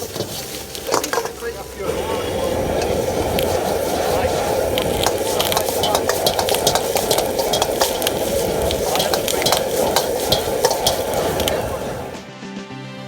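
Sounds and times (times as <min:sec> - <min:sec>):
noodles sizzling in a wok: 0:00.0 - 0:12.2
utensil clicking against wok: 0:00.0 - 0:12.2
music: 0:02.8 - 0:13.0.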